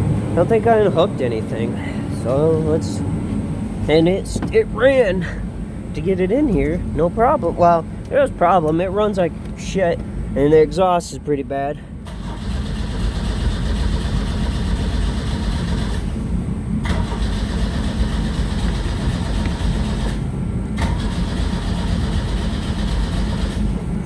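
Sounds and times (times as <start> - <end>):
starter cranking engine: 12.0 - 16.2, 16.8 - 23.9.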